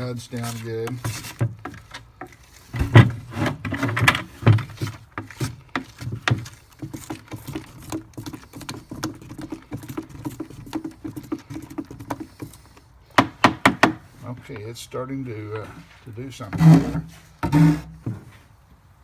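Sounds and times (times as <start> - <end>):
stick stirring foam in container: 0.1 - 3.3, 4.4 - 12.9.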